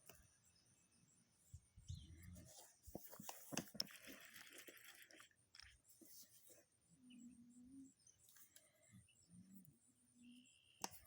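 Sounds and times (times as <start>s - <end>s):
faint clicks: 10.8s - 11.0s.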